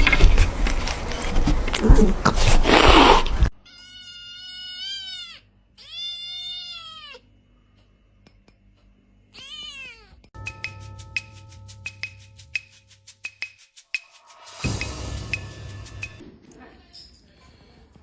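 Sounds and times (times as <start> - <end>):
cat meowing: 2.7 - 7.2, 9.3 - 10.3.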